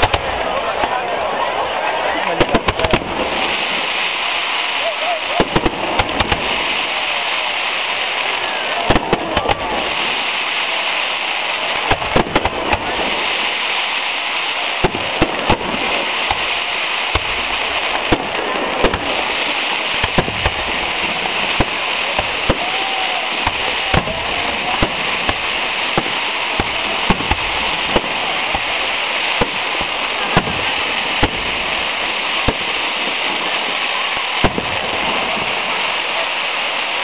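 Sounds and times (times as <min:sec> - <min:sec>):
fireworks bangs: 0:00.0 - 0:37.0
fireworks crackling: 0:00.0 - 0:37.0.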